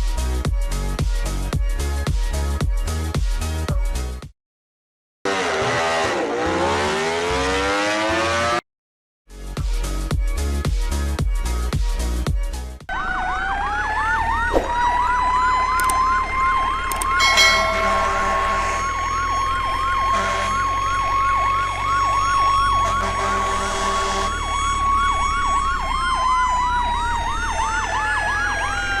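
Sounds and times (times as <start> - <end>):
electronic siren sweeping: 12.9 - 29.0
steady held tone: 17.2 - 18.9.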